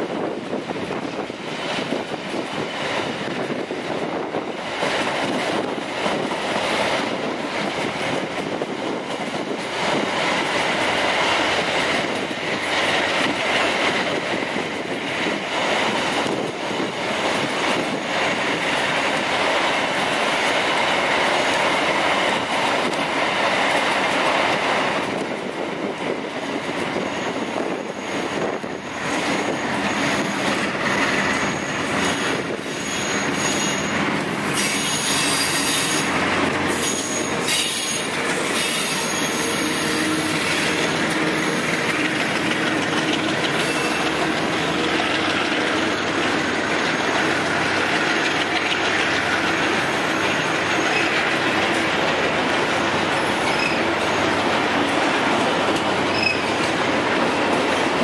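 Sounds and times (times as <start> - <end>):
freight train wagons rolling: 26.2 - 58.0
wheels squealing: 27.0 - 47.4, 52.8 - 54.6, 56.1 - 56.7
wheels clacking over rail joints: 28.9 - 58.0
thin high squeal: 36.8 - 40.6, 43.6 - 44.1, 53.5 - 54.3, 56.1 - 56.5.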